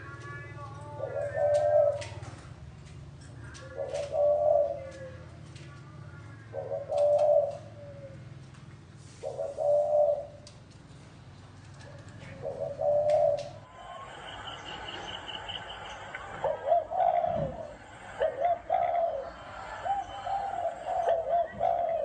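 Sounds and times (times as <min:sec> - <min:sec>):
dove cooing: 0:00.9 - 0:02.6, 0:03.3 - 0:10.6, 0:11.6 - 0:22.0
bird high chirps: 0:13.0 - 0:22.0.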